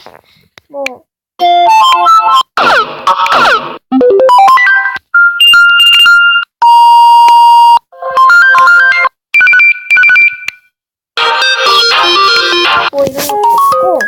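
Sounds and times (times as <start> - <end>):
phone ringtone melodies: 3.9 - 6.5, 8.0 - 10.5, 11.2 - 14.0.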